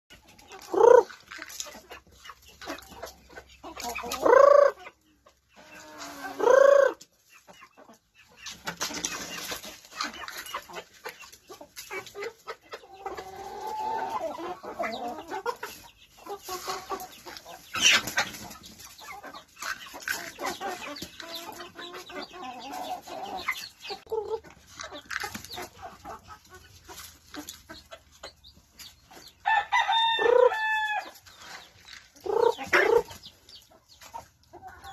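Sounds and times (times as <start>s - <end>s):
chickens clucking: 0.1s - 34.9s
loud drawn-out chicken calls: 0.3s - 1.2s, 5.6s - 7.1s, 11.9s - 24.4s, 29.1s - 33.4s.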